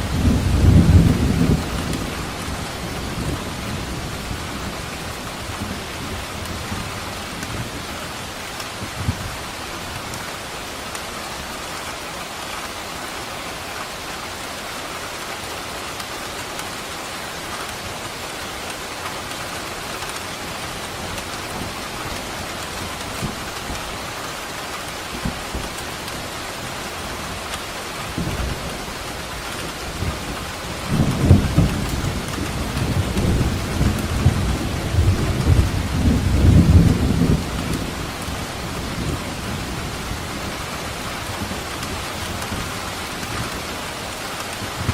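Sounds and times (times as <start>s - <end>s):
thunder rumble: 0.0s - 5.0s, 29.9s - 43.7s
rain falling: 0.0s - 44.9s.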